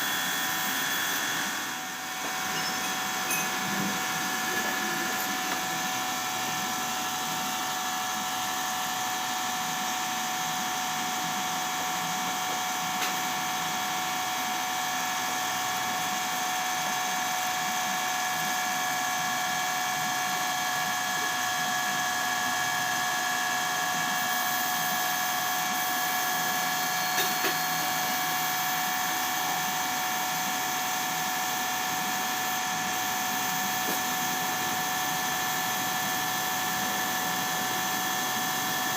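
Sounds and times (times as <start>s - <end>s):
power tool whining: 0.0s - 7.7s.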